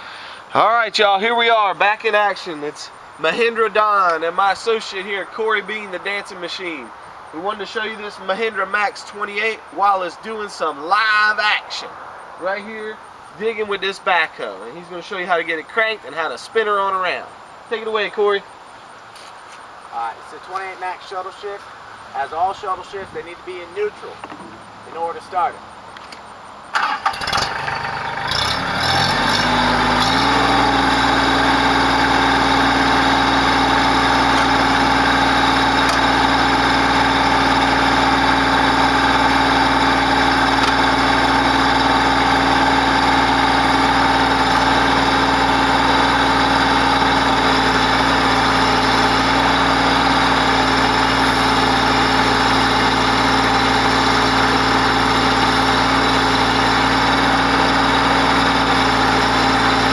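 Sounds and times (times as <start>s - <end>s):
diesel tractor engine starting: 0.0s - 11.6s, 26.6s - 59.9s.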